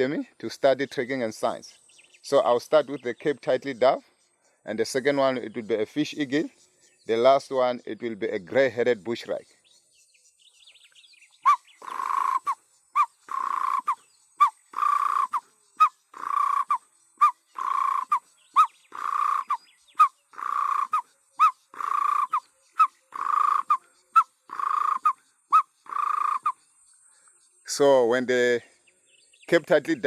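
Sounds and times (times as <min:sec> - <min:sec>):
man imitating dove call: 0:11.5 - 0:26.6.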